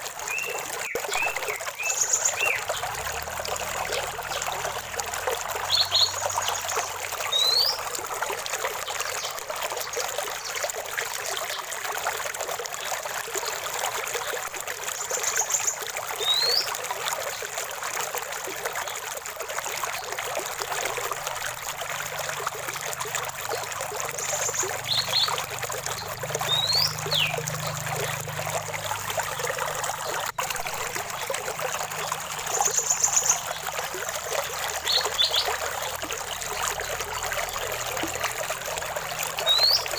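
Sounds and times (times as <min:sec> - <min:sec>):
water trickling: 0:00.0 - 0:39.9
birds whistling and chirping: 0:00.3 - 0:02.8, 0:05.7 - 0:07.8, 0:16.2 - 0:16.7, 0:24.2 - 0:27.8, 0:39.4 - 0:39.9.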